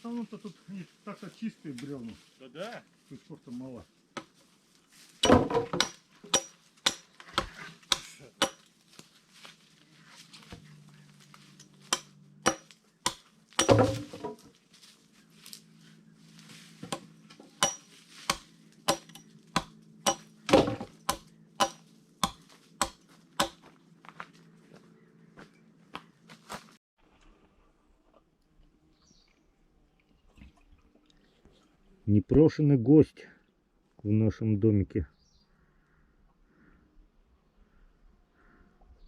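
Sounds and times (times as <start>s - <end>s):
axe chopping into log: 5.2s - 8.6s, 11.8s - 14.4s, 16.8s - 23.7s.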